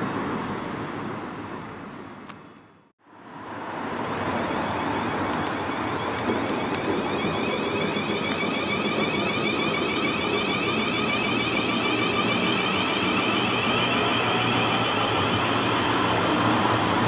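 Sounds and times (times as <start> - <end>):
train running past: 3.4 - 17.0.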